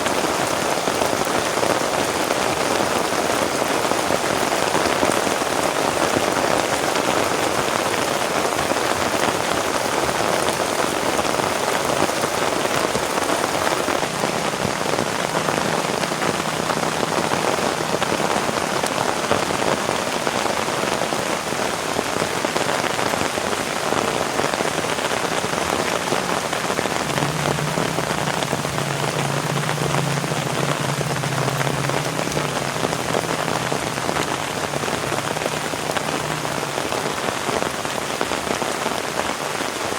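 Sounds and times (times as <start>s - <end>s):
heavy rain: 0.0s - 39.9s
faint low drone: 26.1s - 36.8s.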